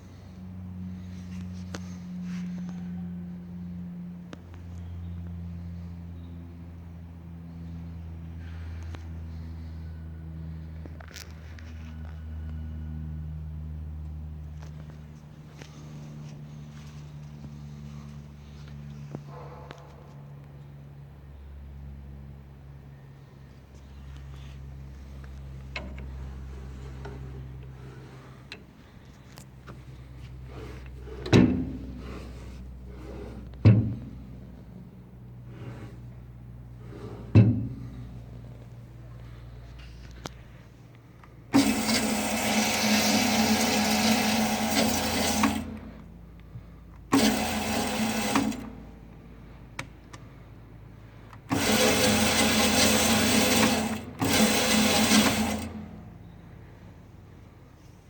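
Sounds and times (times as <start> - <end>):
band saw humming: 24.8 - 38.7, 41.4 - 46.1, 47.1 - 49.2, 51.4 - 56.4
heavy clunks of metal parts: 29.7 - 34.7, 36.8 - 38.5.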